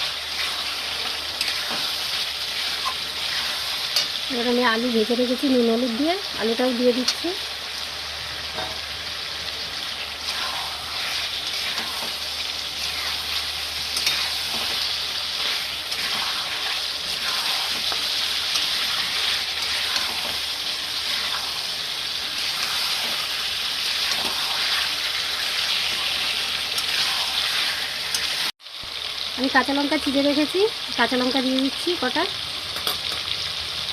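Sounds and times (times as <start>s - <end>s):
stirring scrapes in pan: 0.0s - 4.2s, 10.2s - 28.5s
food sizzling in hot oil: 0.0s - 33.9s.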